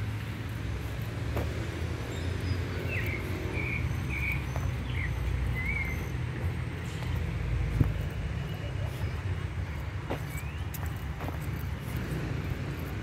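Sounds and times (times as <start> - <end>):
high bird chirps: 2.1 - 6.2.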